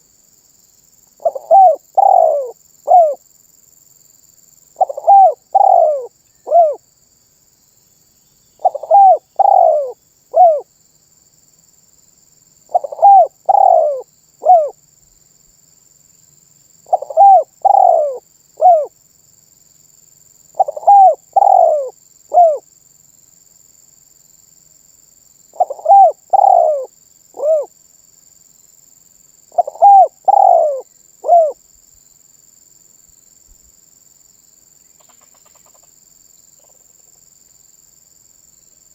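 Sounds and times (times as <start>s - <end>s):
dove cooing: 1.2s - 3.2s, 4.8s - 6.8s, 8.6s - 10.7s, 12.7s - 14.8s, 16.9s - 18.9s, 20.6s - 22.6s, 25.6s - 27.7s, 29.5s - 31.6s.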